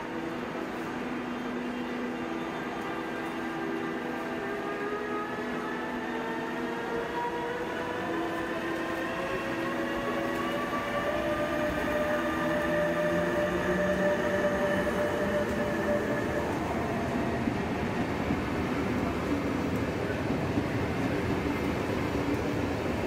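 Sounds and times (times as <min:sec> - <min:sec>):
electric locomotive whine: 0:00.0 - 0:23.0
train coaches rumbling on rails: 0:00.0 - 0:23.0.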